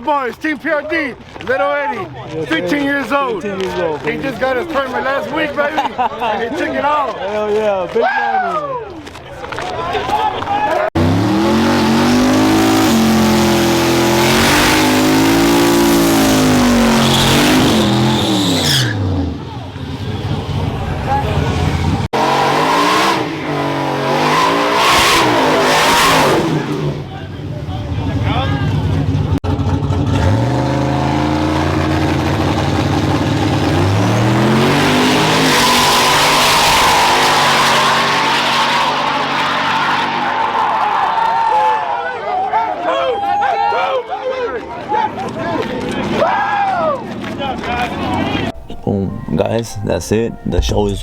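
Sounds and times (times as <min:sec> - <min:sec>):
truck engine revving hard: 0:11.0 - 0:41.1.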